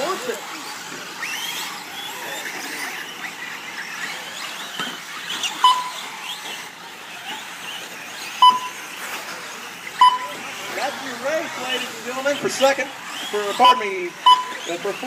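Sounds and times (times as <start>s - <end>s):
rc truck motors whining: 0.0s - 15.0s
short electronic beep: 5.6s - 6.0s, 8.4s - 8.8s, 10.0s - 10.4s, 13.6s - 14.7s.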